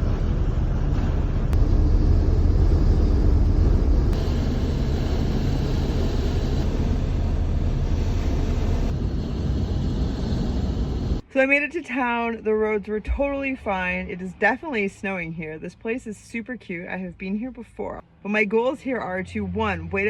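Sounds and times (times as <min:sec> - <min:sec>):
van engine and road rumble: 0:00.0 - 0:11.2.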